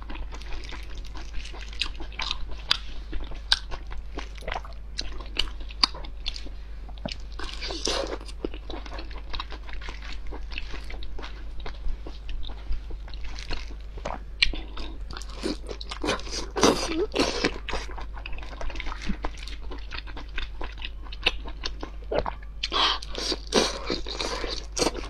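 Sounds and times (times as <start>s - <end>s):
biting and chewing sausages: 0.0s - 25.0s.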